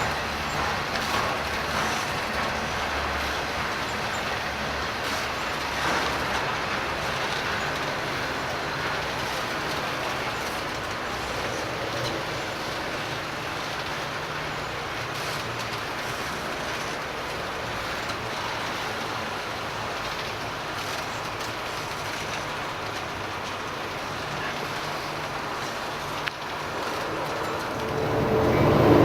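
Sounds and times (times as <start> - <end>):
faint low engine hum: 0.0 - 29.0
train wheels rumbling on rail: 0.0 - 29.0.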